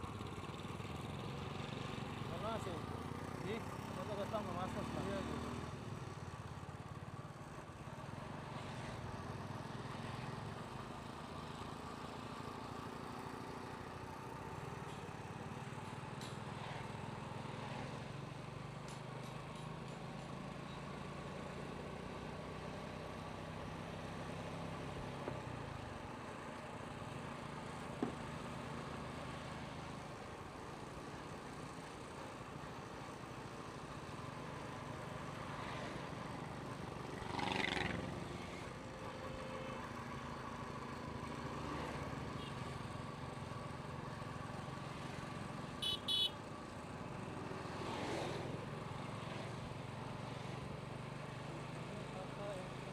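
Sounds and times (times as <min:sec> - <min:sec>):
road noise: 0:00.0 - 0:52.9.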